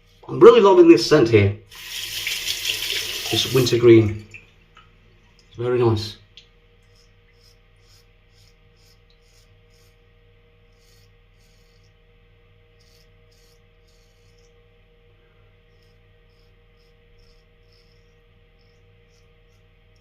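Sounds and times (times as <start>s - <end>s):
razor scraping stubble: 6.8s - 10.0s, 10.6s - 12.0s, 12.7s - 14.6s, 15.7s - 20.0s.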